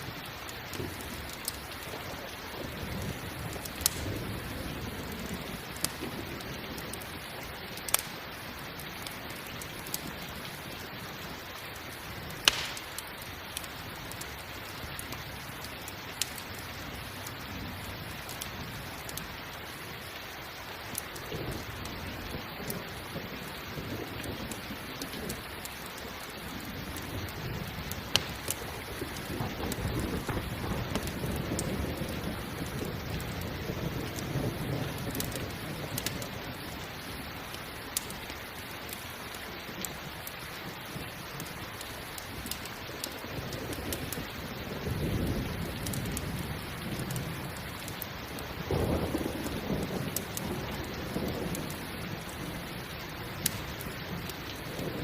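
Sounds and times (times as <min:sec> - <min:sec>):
low thunder rumbles: 0:00.0 - 0:11.4, 0:21.2 - 0:38.3, 0:43.1 - 0:55.0
campfire crackling and popping: 0:00.0 - 0:55.0
steady rain: 0:00.0 - 0:55.0.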